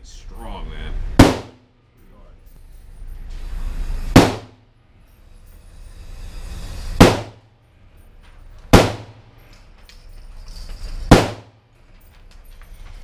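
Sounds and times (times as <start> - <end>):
gunshots echoing indoors: 1.2 - 1.7, 4.2 - 4.6, 7.0 - 7.4, 8.7 - 9.4, 11.1 - 11.7.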